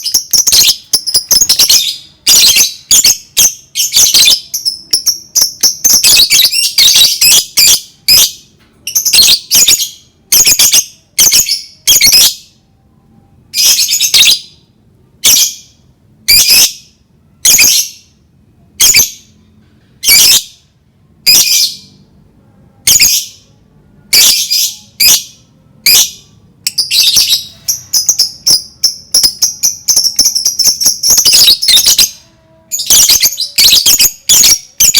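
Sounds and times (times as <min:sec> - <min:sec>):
lovebird shrill chirps: 0:00.0 - 0:08.3, 0:24.1 - 0:34.9.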